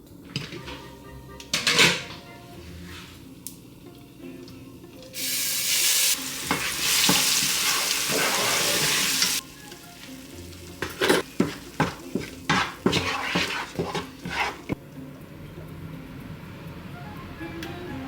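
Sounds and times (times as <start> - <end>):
food sizzling in hot oil: 5.0 - 14.8
utensil stirring in a pan: 5.2 - 14.8.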